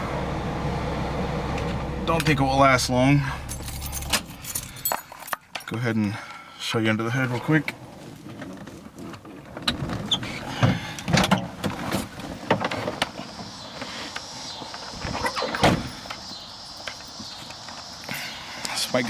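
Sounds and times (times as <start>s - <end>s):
loud thump: 15.0s - 16.1s
car doors and latch clunking: 15.0s - 17.8s.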